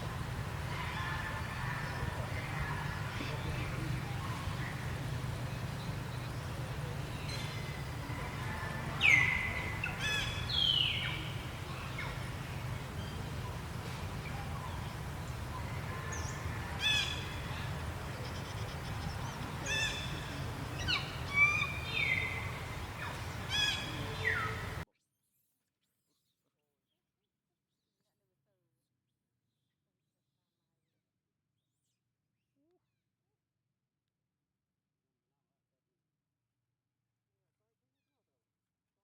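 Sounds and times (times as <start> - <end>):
steady low hum: 0.0 - 24.8.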